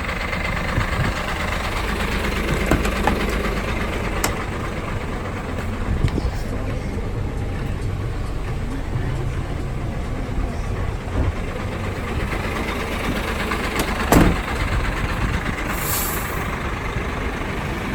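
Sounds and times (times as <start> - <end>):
diesel truck engine idling: 0.0 - 17.9
loud thump: 13.8 - 14.5.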